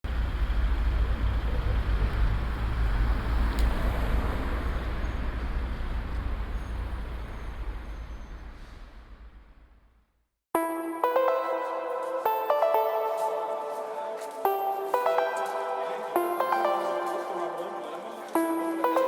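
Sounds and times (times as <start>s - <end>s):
vehicle road rumble: 0.0s - 10.0s.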